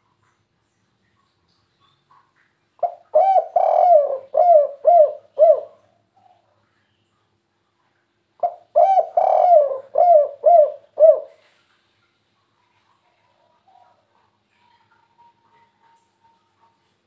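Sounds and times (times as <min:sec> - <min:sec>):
dove cooing: 0:02.8 - 0:05.9, 0:08.4 - 0:11.5.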